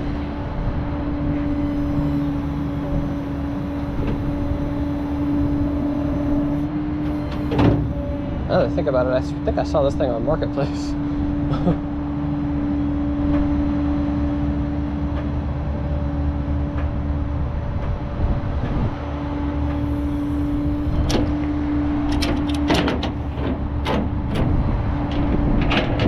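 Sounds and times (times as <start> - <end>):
truck engine and road drone: 0.0 - 26.0
sharp clicks and rattles: 22.1 - 26.0.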